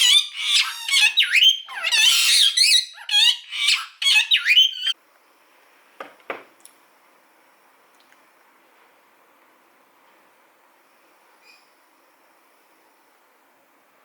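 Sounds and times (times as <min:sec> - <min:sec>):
bird squawking: 0:00.0 - 0:05.0.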